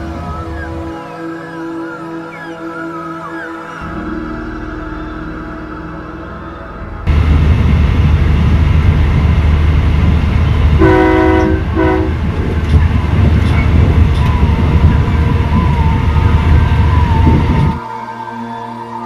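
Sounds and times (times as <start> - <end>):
train rumbling: 6.5 - 17.9
train horn blasts: 10.8 - 17.8.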